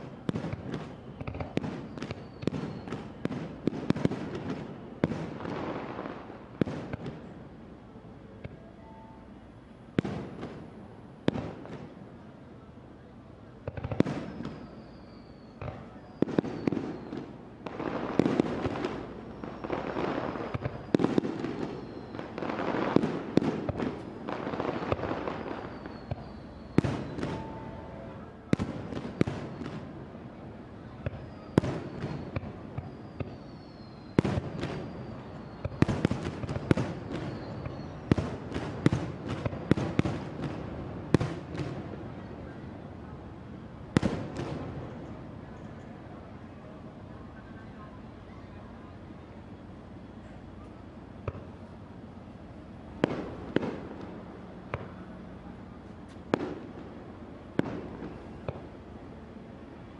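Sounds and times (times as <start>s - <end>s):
fireworks bursting: 0.0s - 7.6s, 9.9s - 12.1s, 13.6s - 42.8s, 43.9s - 45.2s, 51.1s - 58.8s
falling whistles: 0.8s - 3.2s, 14.1s - 17.3s, 19.0s - 22.4s, 25.2s - 27.9s, 31.1s - 36.0s, 36.7s - 38.2s
rapid firework cracks: 13.6s - 14.8s, 15.6s - 27.4s, 34.1s - 41.9s, 44.0s - 44.8s, 53.0s - 55.0s, 56.2s - 58.7s.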